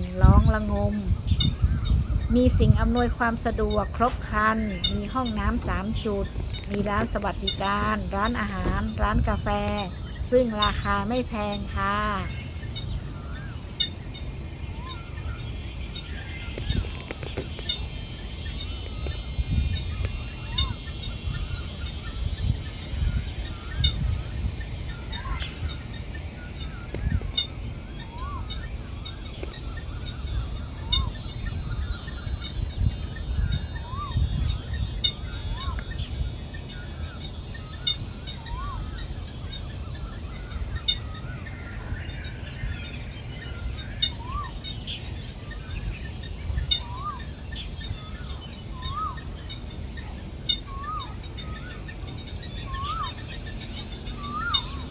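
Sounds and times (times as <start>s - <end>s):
high insect drone: 0.0s - 54.9s
insects trilling in bursts: 0.0s - 54.9s
bird call rising and falling: 39.9s - 54.9s.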